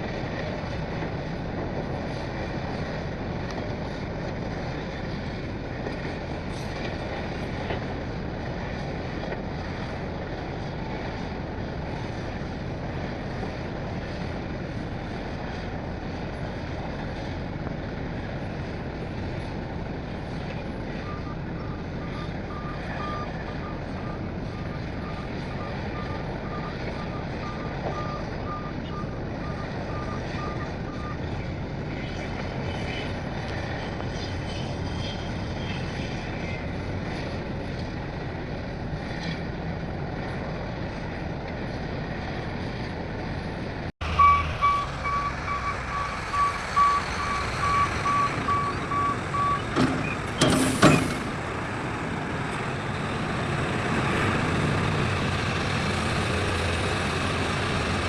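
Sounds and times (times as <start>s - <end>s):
diesel engine running: 0.0s - 58.0s
reversing alarm beeping: 21.0s - 31.2s, 44.1s - 50.2s.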